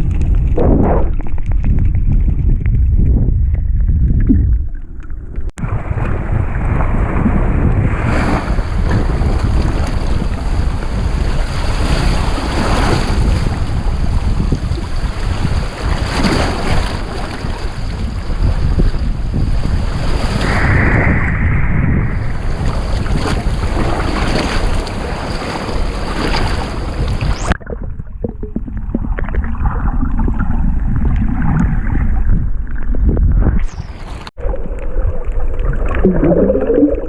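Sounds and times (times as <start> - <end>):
muffled underwater rumble: 0.0 - 37.0
wind on microphone: 0.0 - 37.0
waves: 5.6 - 27.6, 33.6 - 37.0.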